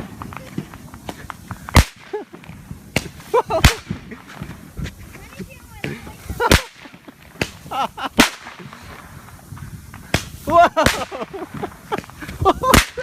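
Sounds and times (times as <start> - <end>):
roman candle pops: 0.0 - 4.0, 10.0 - 13.0.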